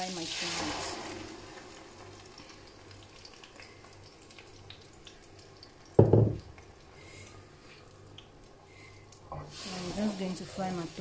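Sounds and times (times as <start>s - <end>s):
tomato frying in oil: 0.0s - 11.0s
loud dull knock: 6.0s - 6.4s.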